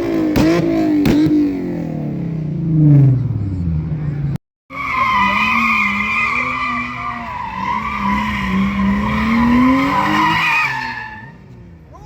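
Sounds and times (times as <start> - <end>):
car tires squealing: 4.7 - 12.0.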